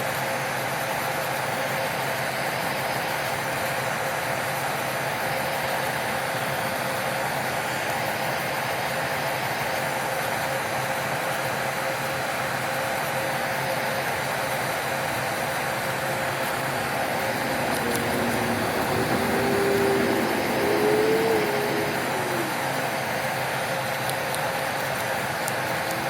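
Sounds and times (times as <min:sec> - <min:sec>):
small electric motor humming: 0:14.8 - 0:23.4.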